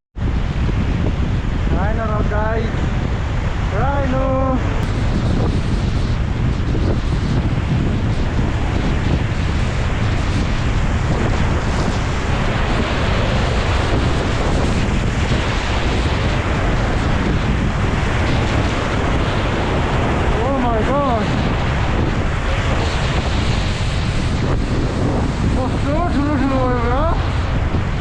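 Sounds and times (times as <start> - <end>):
wind buffeting microphone: 0.2 - 28.0.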